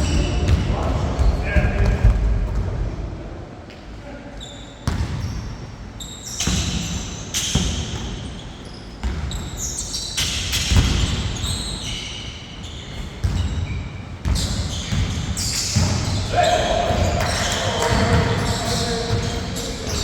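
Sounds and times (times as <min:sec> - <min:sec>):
shoe squeaks on court: 0:04.4 - 0:20.0.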